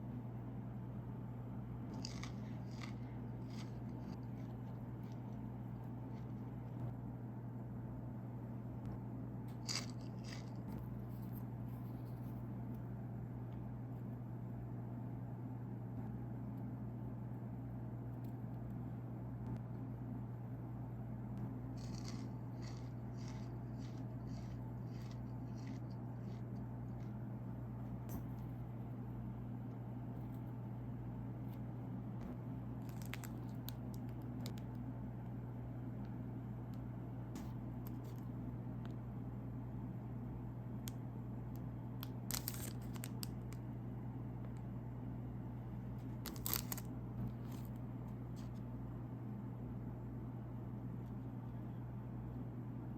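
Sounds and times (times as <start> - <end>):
steady low hum: 0.0 - 52.9
crunching bite of meringue: 1.9 - 6.6, 9.5 - 10.8, 21.8 - 27.2, 32.8 - 34.6, 42.0 - 43.6, 46.0 - 47.8
snack packaging clicks and crinkles: 2.0 - 5.3, 9.5 - 10.8, 21.8 - 27.1, 32.8 - 34.8, 42.0 - 43.6, 46.0 - 47.8.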